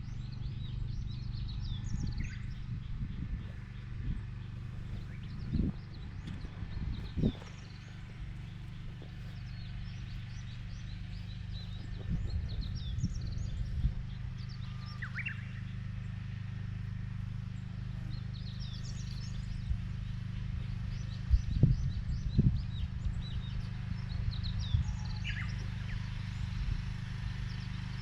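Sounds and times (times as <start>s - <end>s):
birds chirping: 0.0s - 28.0s
engine humming: 0.0s - 28.0s.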